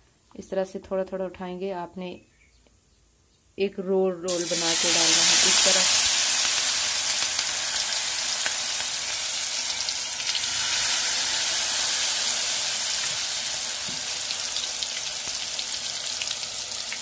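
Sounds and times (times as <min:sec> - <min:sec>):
batter sizzling in hot oil: 0:04.3 - 0:17.0.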